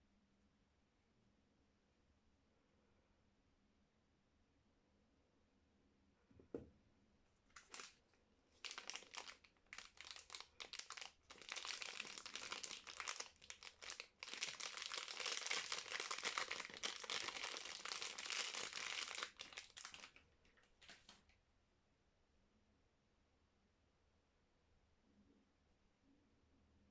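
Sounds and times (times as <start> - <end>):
soap wrapper crinkling: 7.5 - 8.0, 8.6 - 21.3.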